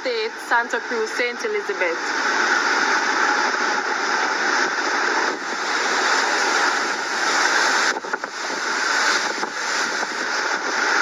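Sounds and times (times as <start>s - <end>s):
rushing rain and wind: 0.0s - 11.0s.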